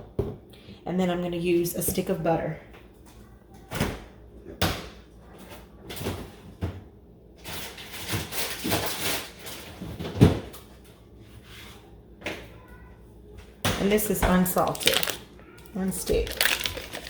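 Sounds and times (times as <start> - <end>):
rustling: 16.0 - 17.0.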